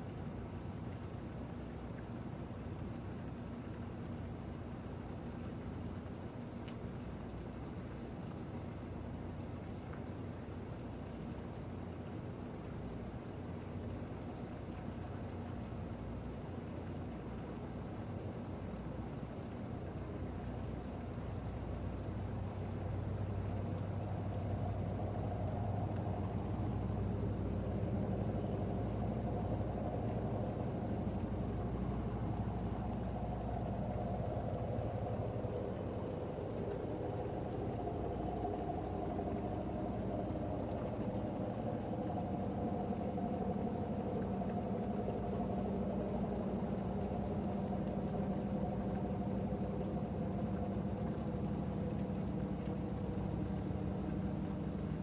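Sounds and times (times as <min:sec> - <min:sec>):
engine idling: 0:19.9 - 0:55.0.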